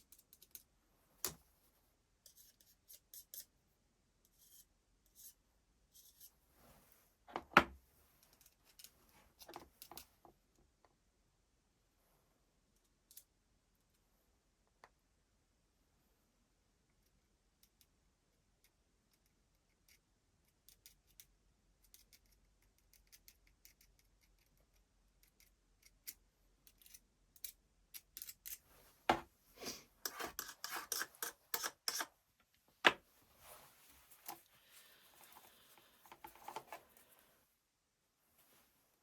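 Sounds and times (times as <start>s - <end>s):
parts scraping: 29.6s - 32.1s.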